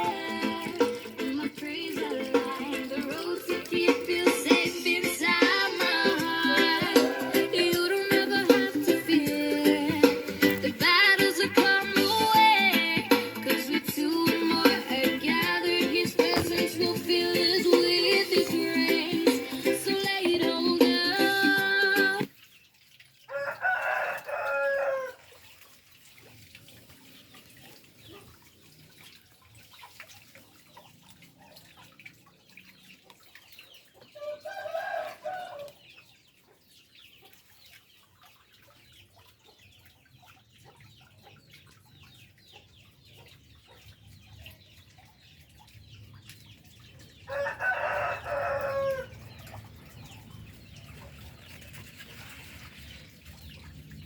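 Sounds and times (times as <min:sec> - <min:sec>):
rooster crowing: 0:23.3 - 0:25.2, 0:34.2 - 0:35.7, 0:47.3 - 0:49.1.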